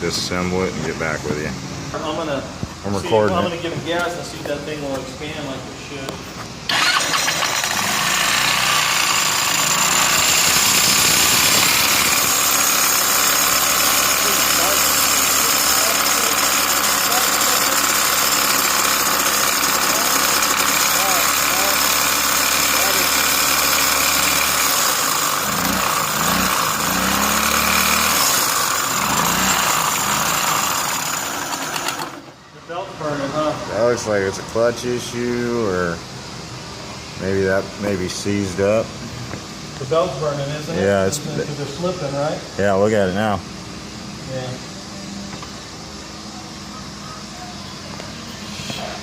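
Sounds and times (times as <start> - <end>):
scooter engine revving: 6.7 - 32.3
belt drive whine: 6.7 - 32.4.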